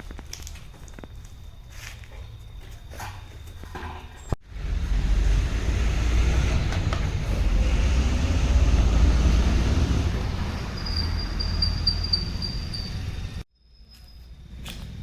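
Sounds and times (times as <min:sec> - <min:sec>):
vehicle low rumble: 0:00.0 - 0:13.5.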